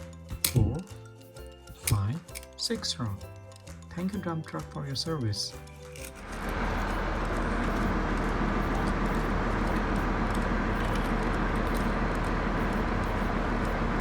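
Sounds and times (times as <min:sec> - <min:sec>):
truck engine running: 0:06.2 - 0:14.0.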